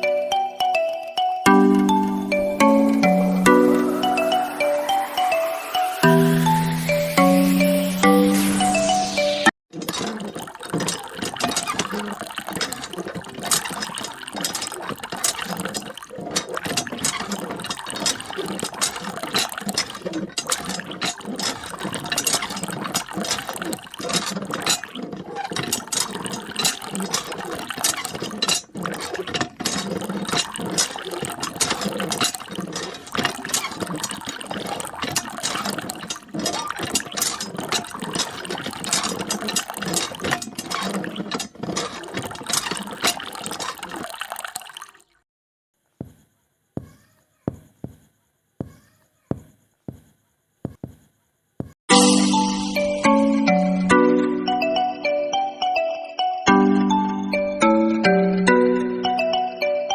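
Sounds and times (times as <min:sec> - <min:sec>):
geared mechanism clicking: 0:09.7 - 0:44.1.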